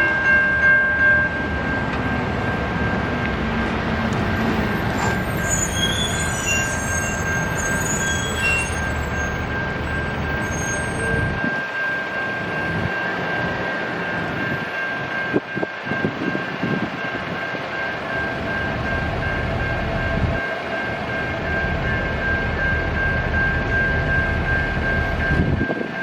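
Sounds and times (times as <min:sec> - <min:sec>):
high pulsing bell ring: 0:00.0 - 0:03.2, 0:04.1 - 0:26.0
train wheels rumbling on rail: 0:00.0 - 0:26.0
train knocks: 0:00.5 - 0:11.8.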